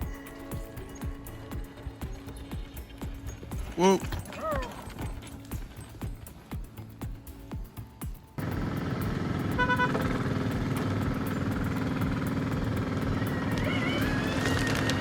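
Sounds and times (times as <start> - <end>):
hoof clops: 0.0 - 15.0
heavy machine engine running: 8.4 - 15.0.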